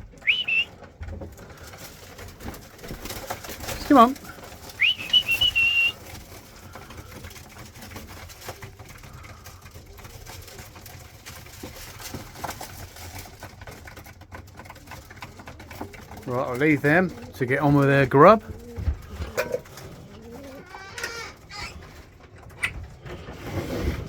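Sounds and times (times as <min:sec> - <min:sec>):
faint clicks and shuffling: 0:00.0 - 0:24.0
person whistling: 0:00.2 - 0:00.7, 0:04.8 - 0:06.0.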